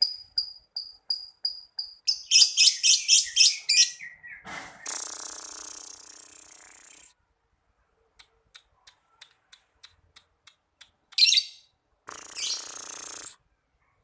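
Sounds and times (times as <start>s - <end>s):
lovebird chattering: 0.0s - 4.1s, 11.2s - 13.4s.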